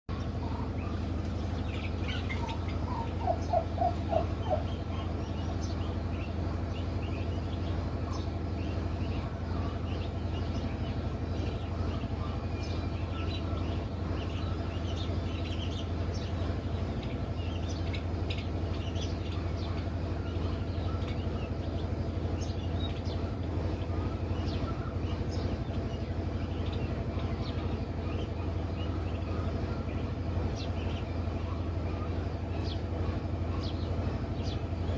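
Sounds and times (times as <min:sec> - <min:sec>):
turkey gobbling: 0:00.1 - 0:06.3, 0:16.6 - 0:25.2
steady low hum: 0:00.1 - 0:34.9
turkey poults peeping: 0:00.1 - 0:34.9.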